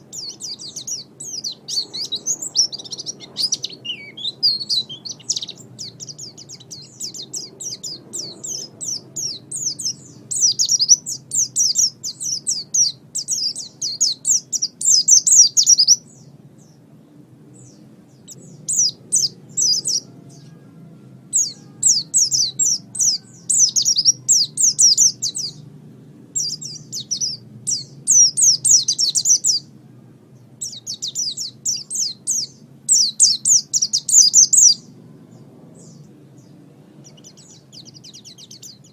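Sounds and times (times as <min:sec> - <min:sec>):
bird twittering song: 0:00.0 - 0:29.8, 0:30.4 - 0:38.9.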